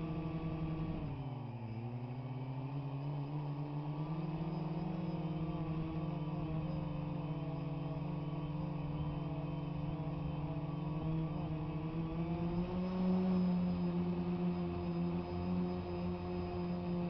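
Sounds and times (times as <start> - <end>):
drone rotors humming: 0.0 - 17.0.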